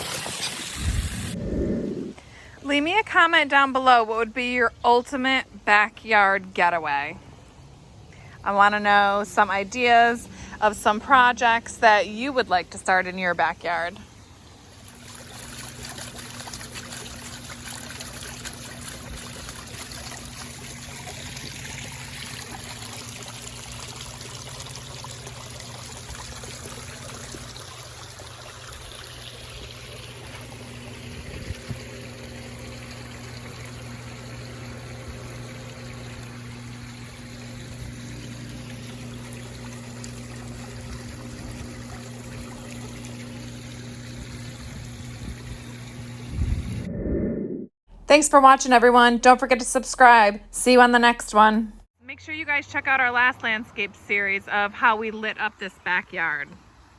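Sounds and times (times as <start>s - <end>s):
low steady hum: 0.8s - 56.9s
water splashing over rocks: 14.8s - 34.4s.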